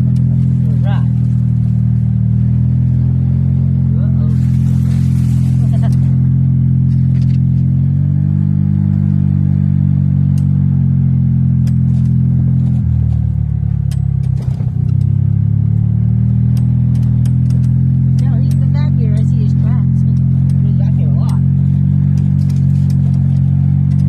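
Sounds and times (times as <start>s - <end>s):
golf cart running: 0.0s - 8.1s, 10.0s - 24.0s
light rattling clicks: 11.6s - 12.2s, 13.7s - 15.2s, 16.5s - 24.0s.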